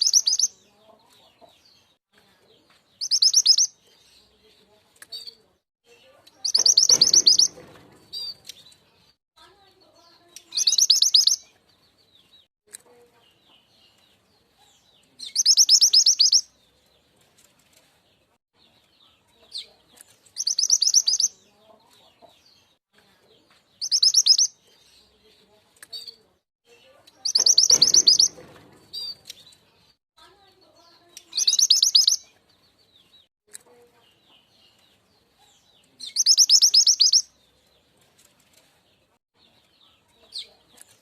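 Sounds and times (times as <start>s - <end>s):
faint bird chirps: 0.0s - 1.2s, 2.5s - 4.4s, 5.1s - 8.6s, 9.9s - 11.5s, 14.6s - 16.5s, 19.0s - 22.0s, 23.8s - 25.3s, 26.0s - 29.4s, 30.6s - 32.3s, 35.4s - 37.3s
bird trilling song: 0.0s - 1.9s, 2.9s - 9.1s, 10.2s - 12.5s, 13.2s - 16.8s, 18.6s - 22.8s, 23.7s - 25.2s, 25.9s - 30.0s, 30.6s - 37.8s.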